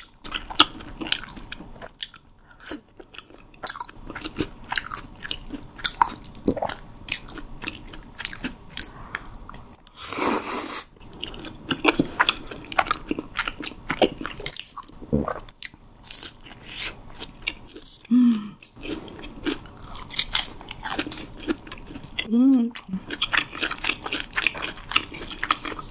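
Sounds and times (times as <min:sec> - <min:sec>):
crunchy snack chewing: 0:18.6 - 0:25.9.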